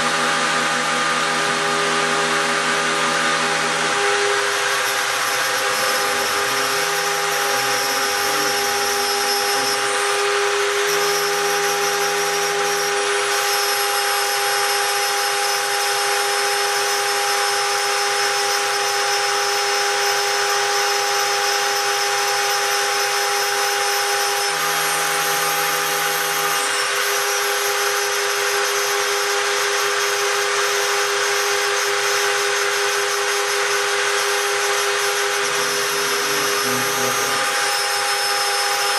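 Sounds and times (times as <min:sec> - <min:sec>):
low motor tones: 0:00.0 - 0:13.4, 0:33.8 - 0:38.9
milling machine spindle whine: 0:00.0 - 0:38.9.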